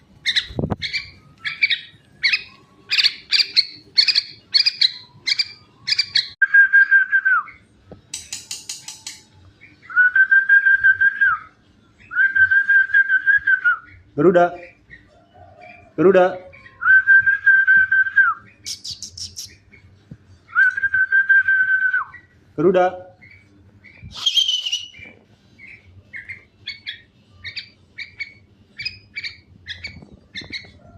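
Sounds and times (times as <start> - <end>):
bird calling and chirping: 0.2 - 10.2, 18.4 - 19.9, 23.2 - 30.9.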